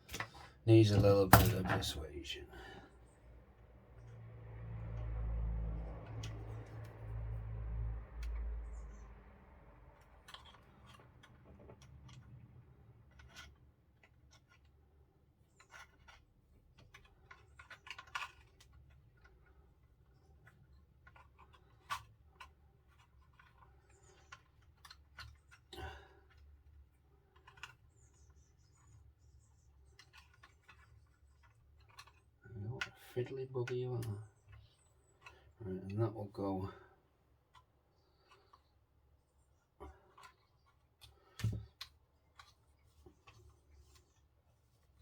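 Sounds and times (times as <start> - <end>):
small plastic parts clicking: 9.9 - 33.0.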